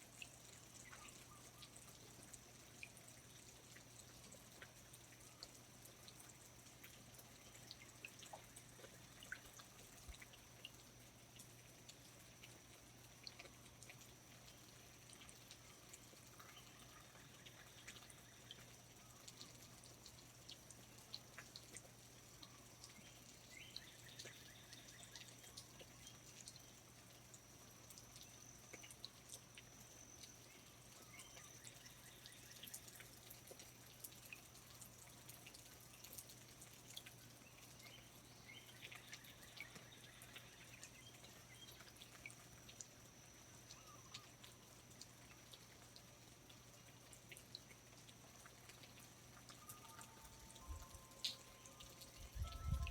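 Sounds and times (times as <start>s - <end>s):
water drips ticking: 0.0s - 52.9s
thin high-pitched tone: 49.7s - 52.9s.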